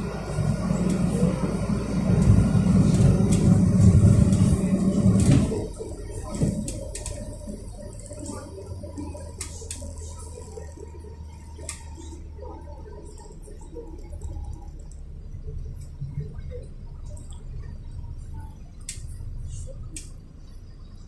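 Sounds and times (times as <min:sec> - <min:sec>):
bus engine humming: 0:00.0 - 0:21.0
clicks and rattles from cabin fittings: 0:04.2 - 0:07.5.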